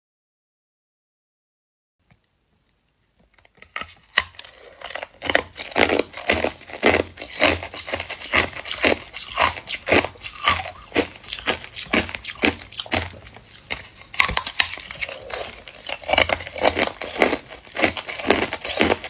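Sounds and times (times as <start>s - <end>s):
person chewing ice crunches: 3.4s - 19.0s.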